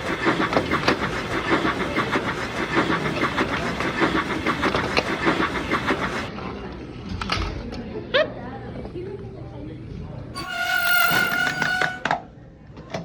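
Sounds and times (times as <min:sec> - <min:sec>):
train clattering: 0:00.0 - 0:06.3, 0:10.4 - 0:12.2.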